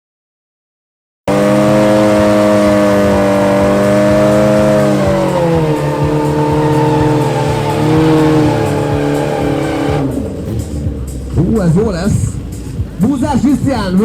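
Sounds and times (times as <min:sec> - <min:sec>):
motorcycle engine at high revs: 0:01.3 - 0:11.4.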